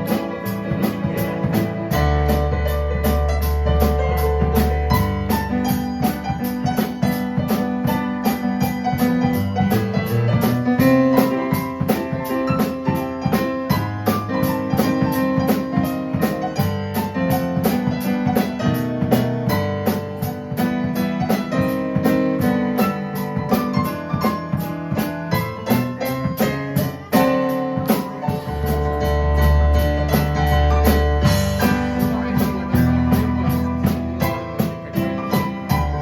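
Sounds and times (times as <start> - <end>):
drum kit steady beat: 0.0 - 36.0
keyboard playing chords: 0.0 - 36.0.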